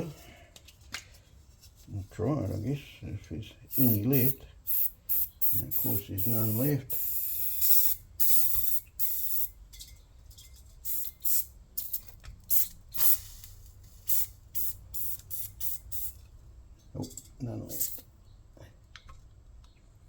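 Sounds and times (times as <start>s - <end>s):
aerosol can spraying: 3.7s - 9.5s, 10.8s - 16.2s.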